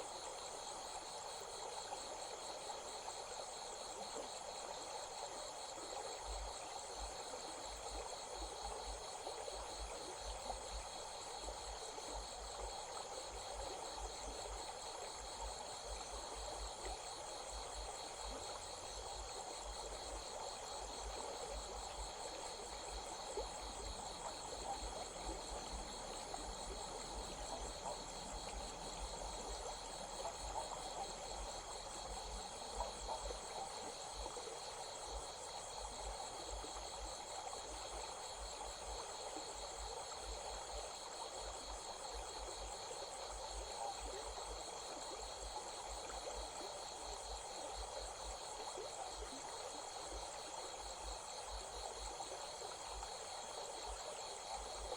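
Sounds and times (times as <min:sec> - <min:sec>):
stream water running: 0:00.0 - 0:54.9
insects trilling: 0:19.6 - 0:36.8.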